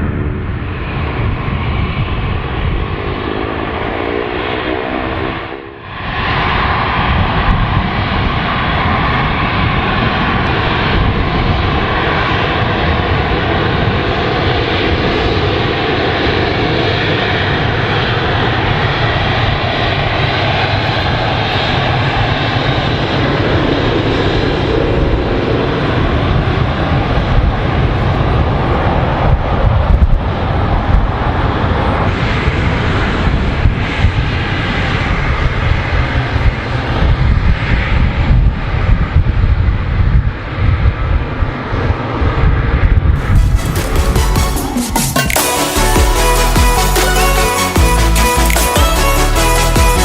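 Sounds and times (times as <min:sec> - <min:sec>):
jet engines running: 0:00.0 - 0:50.0.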